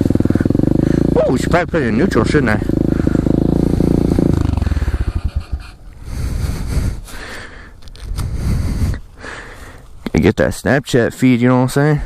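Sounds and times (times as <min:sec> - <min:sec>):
motorcycle engine idling: 0:00.0 - 0:10.2
breathing: 0:00.2 - 0:01.1, 0:02.9 - 0:03.4, 0:04.0 - 0:05.2, 0:05.9 - 0:10.0.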